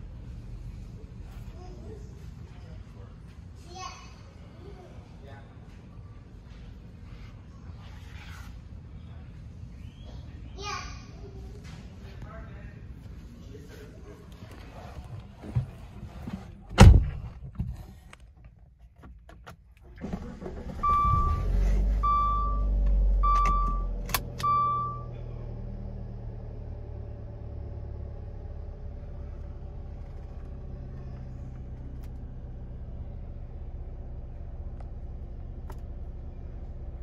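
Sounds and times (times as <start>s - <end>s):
car engine starting and idling: 0.0s - 2.0s, 16.7s - 37.0s.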